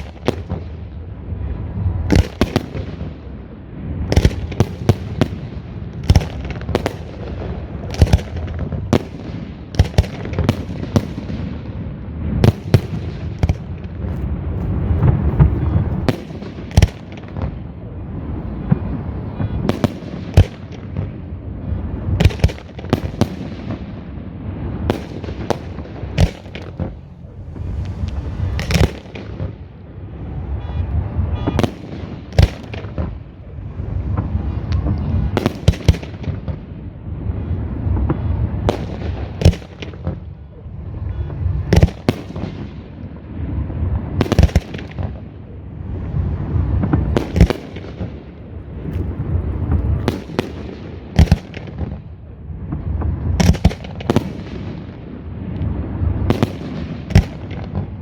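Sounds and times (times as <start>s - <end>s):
fireworks bursting with bangs: 0.0s - 58.0s
low rumble of launches: 0.0s - 58.0s.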